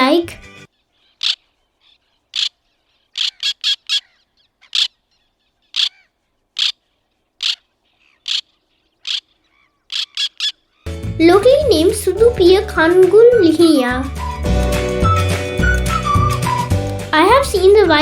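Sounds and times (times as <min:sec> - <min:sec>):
tern harsh calls: 0:00.8 - 0:11.0.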